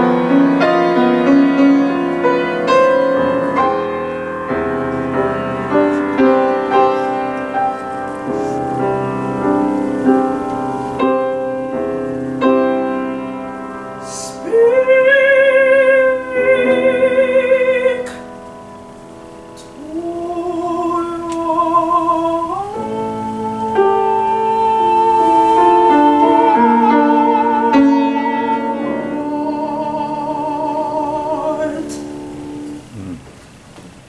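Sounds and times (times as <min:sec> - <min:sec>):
piano accompaniment: 0:00.0 - 0:34.0
woman singing classical: 0:14.0 - 0:33.0.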